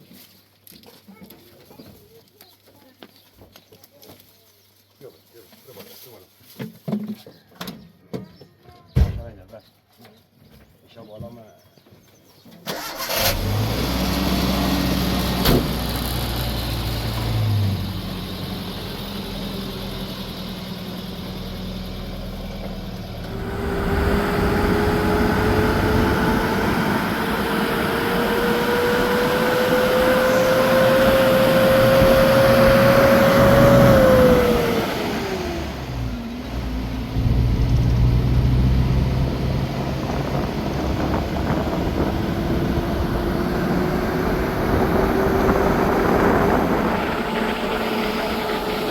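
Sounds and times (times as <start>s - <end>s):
vehicle engine pulling away: 12.7s - 48.9s
rising engine whine: 12.8s - 48.9s.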